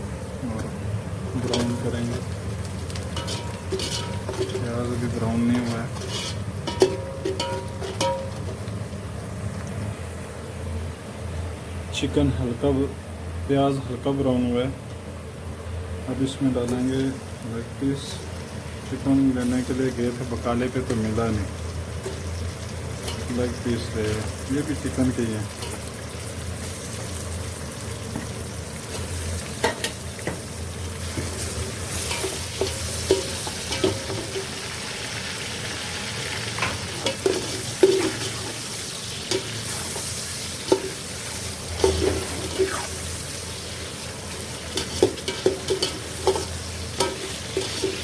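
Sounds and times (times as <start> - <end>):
chicken frying in oil: 1.2 - 9.9, 16.1 - 48.0
spoon knocking and scraping pot: 3.2 - 4.6, 5.6 - 8.5, 44.8 - 48.0.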